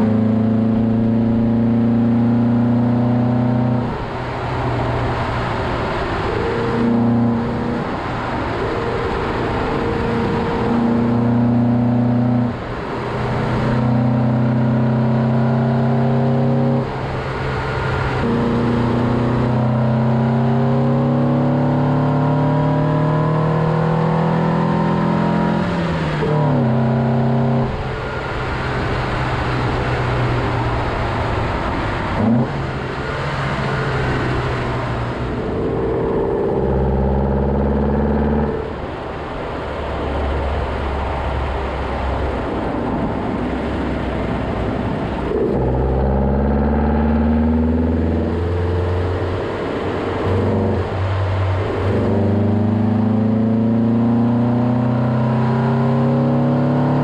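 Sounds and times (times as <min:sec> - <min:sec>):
car engine accelerating through gears: 0:00.0 - 0:57.0
road and wind rush: 0:00.0 - 0:57.0.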